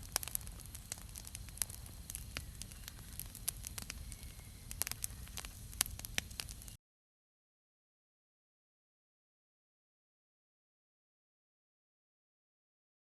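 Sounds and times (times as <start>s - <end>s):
campfire crackling: 0.0s - 6.8s.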